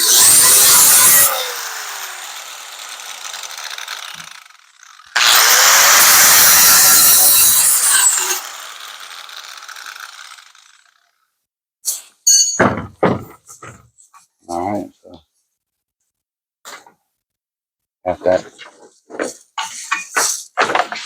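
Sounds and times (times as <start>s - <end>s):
power grinder on sheet metal: 0.0s - 11.0s.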